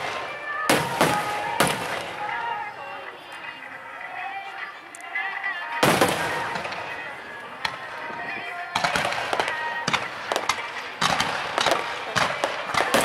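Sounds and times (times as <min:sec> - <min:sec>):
firework shells exploding: 0:00.0 - 0:02.2, 0:08.8 - 0:13.0
faint music: 0:00.0 - 0:13.0.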